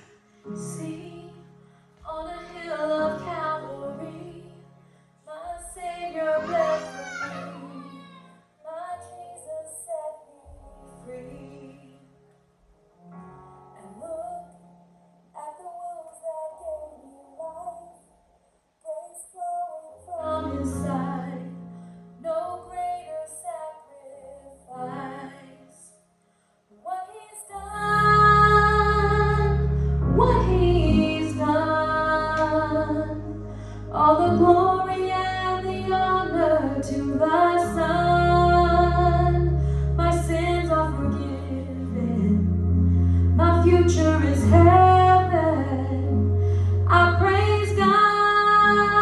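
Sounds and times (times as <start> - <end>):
woman singing worship song: 0.0 - 4.7, 5.3 - 8.0, 8.6 - 12.1, 18.8 - 21.6, 22.2 - 25.9, 26.8 - 42.4, 43.4 - 46.2, 46.8 - 49.0.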